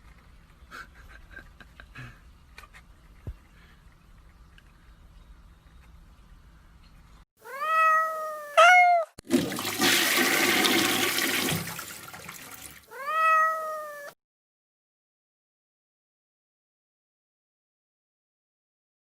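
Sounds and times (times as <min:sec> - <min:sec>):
cat meowing: 0:07.4 - 0:09.2, 0:12.9 - 0:14.2
toilet flushing: 0:09.2 - 0:12.9.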